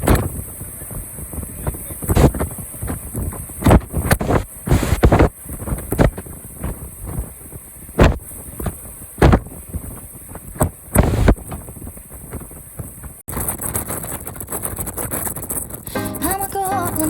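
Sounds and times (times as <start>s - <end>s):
wind buffeting the microphone: 0.0s - 16.0s
rough sea surf: 0.0s - 17.0s
rush of wind: 0.0s - 17.0s.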